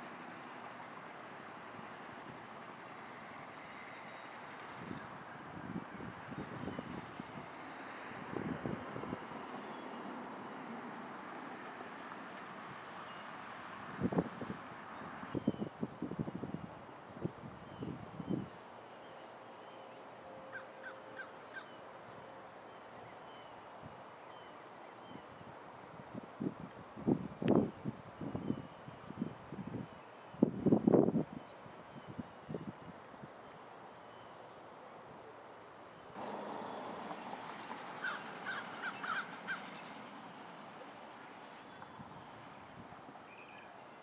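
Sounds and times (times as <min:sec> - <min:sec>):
faint outdoor background: 0:00.0 - 0:44.0
bird harsh calls: 0:36.2 - 0:40.1.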